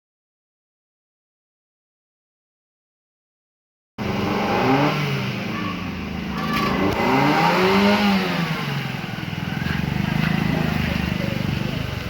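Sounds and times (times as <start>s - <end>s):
vehicle engines revving: 4.0s - 12.0s.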